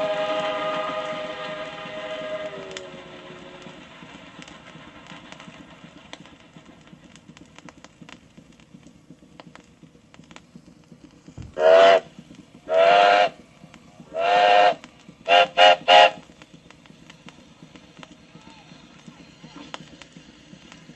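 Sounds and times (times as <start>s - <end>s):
train whistle blasts: 0.0s - 3.8s, 11.6s - 12.1s, 12.7s - 13.4s, 14.1s - 16.2s
low rumble: 0.0s - 20.9s.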